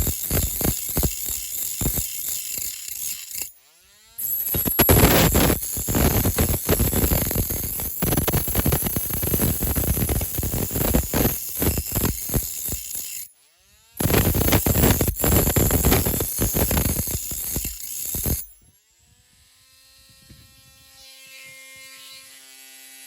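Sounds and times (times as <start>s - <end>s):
hand tool scraping and clicking metal: 0.0s - 3.6s, 4.2s - 13.3s, 14.0s - 18.7s.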